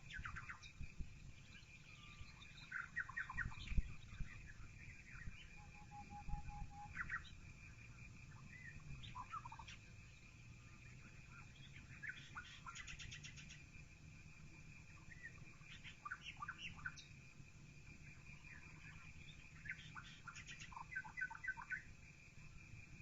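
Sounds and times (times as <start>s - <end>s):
small birds chirping and trilling: 0.0s - 22.1s.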